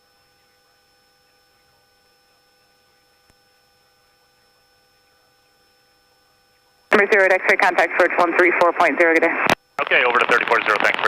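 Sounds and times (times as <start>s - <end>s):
faint electrical whine: 0.0s - 11.0s.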